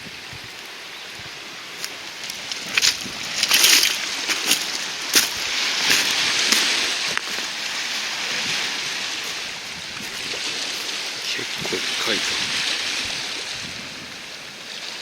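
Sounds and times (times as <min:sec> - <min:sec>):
waves washing over pebbly shore: 0:00.7 - 0:15.0
stones clicking and crackling: 0:02.2 - 0:06.7.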